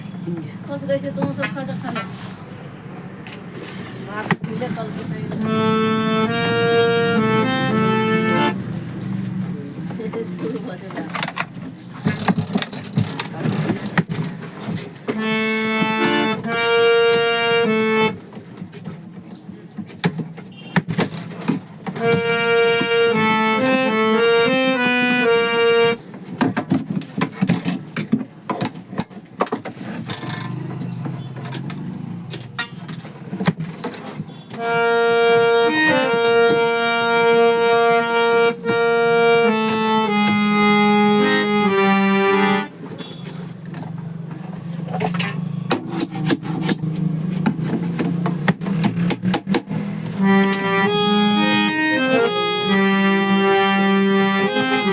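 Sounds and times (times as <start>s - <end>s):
harmonium playing: 4.3s - 9.1s, 15.0s - 18.6s, 21.9s - 26.3s, 34.5s - 43.5s, 46.7s - 54.9s
instrument handling knocks: 20.8s - 25.3s.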